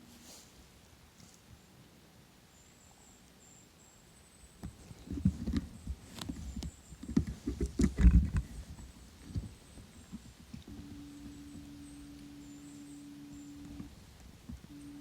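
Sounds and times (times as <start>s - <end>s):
low thumps: 4.6s - 15.0s
rustling crackles: 4.6s - 15.0s.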